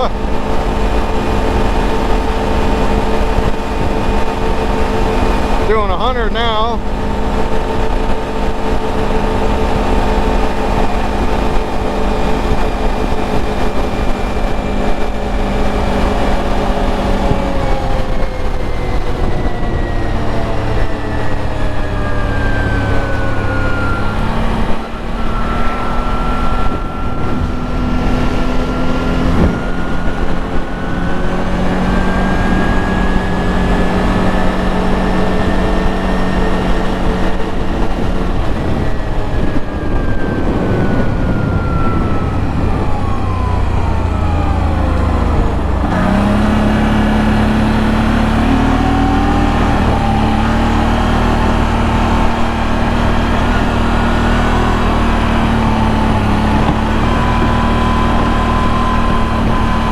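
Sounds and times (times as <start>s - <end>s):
atv engine at speed: 0.0s - 59.9s
wind and tyre noise: 0.0s - 59.9s.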